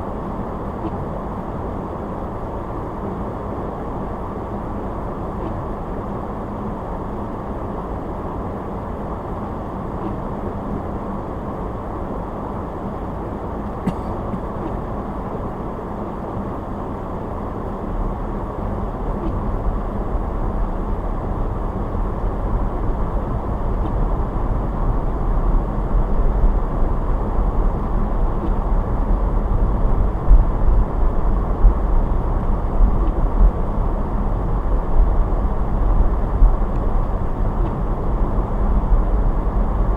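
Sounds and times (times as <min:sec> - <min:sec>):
car road and tyre noise: 0:00.0 - 0:39.9
deep low rumble: 0:17.7 - 0:39.9.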